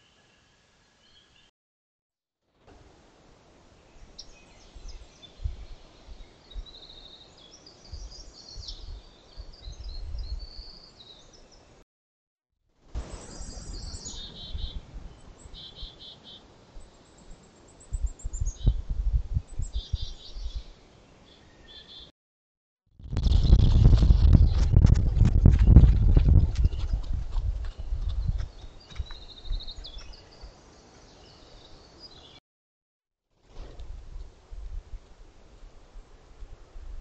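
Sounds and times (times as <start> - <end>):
songbirds chirping and singing: 13.2 - 18.8, 19.6 - 22.1
low rumbles: 23.0 - 29.1.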